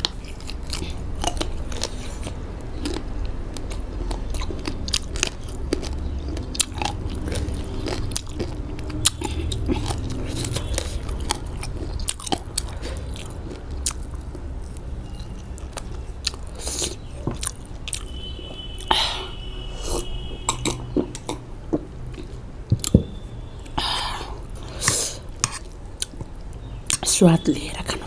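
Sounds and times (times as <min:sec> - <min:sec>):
person biting and chewing: 0:00.0 - 0:18.1.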